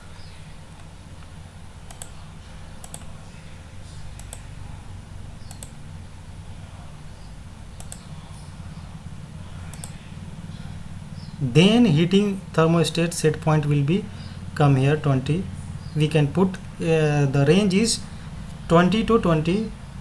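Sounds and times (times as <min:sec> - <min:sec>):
steady low hum: 0:00.0 - 0:20.0
computer mouse clicks: 0:01.9 - 0:02.2, 0:02.8 - 0:03.1, 0:04.2 - 0:04.5, 0:05.4 - 0:05.8, 0:07.8 - 0:08.1, 0:09.7 - 0:10.0.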